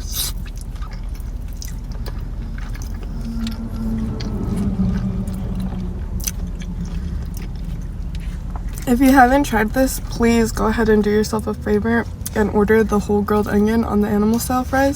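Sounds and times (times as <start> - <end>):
wet chewing: 0.0 - 11.3
steady low drone: 0.0 - 14.8.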